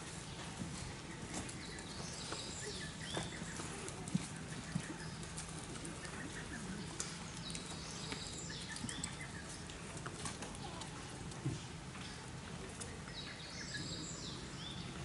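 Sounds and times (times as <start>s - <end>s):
songbird singing high chirps: 12.9s - 15.0s.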